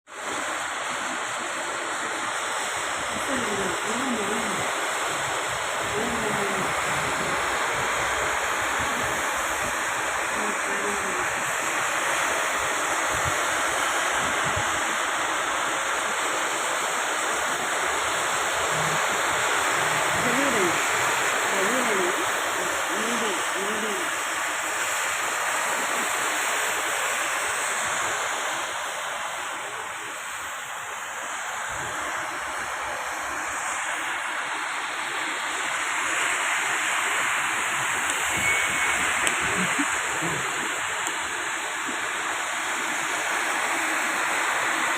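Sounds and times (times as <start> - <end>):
heavy rain hissing: 0.1 - 44.9
faint voices: 0.7 - 11.8, 18.6 - 24.3, 31.3 - 42.2.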